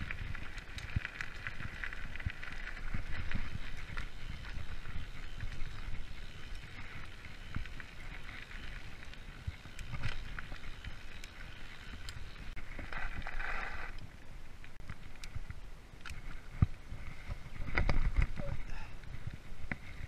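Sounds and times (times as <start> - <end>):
bike rattling over bumps: 0.0 - 14.2
mountain bike rolling on dirt trail: 0.0 - 20.0.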